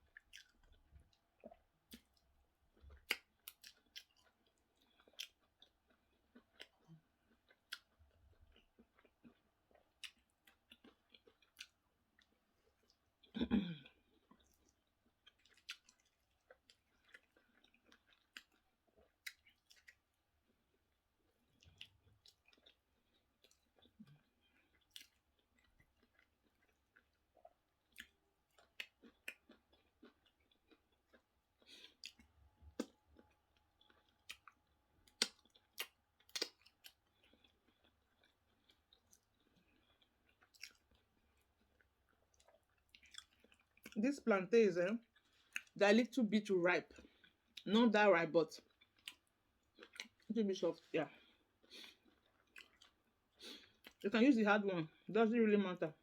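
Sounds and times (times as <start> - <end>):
chewing mouth clicks: 14.3 - 20.0, 21.6 - 44.0, 48.7 - 50.2, 51.6 - 54.0.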